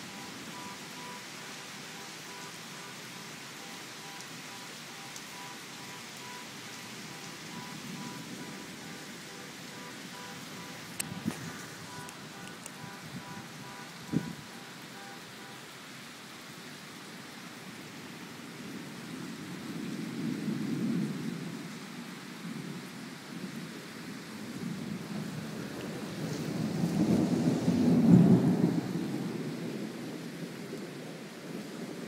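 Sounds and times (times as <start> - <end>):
steady rain: 0.0 - 32.0
thunder rumbling: 3.6 - 15.2, 24.6 - 32.0.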